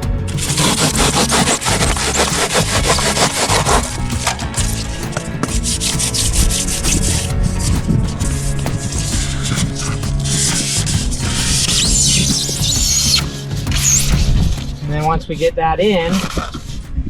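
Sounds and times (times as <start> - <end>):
hand saw rasping: 0.3 - 7.3.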